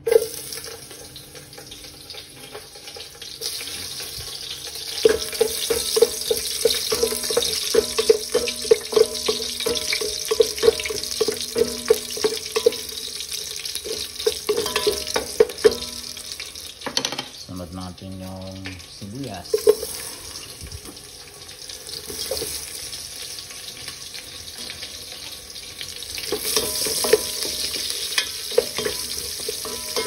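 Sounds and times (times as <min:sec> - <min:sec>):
ginger and garlic sizzling in oil: 0:00.0 - 0:30.0
wooden spoon knocking against pot: 0:05.1 - 0:12.9.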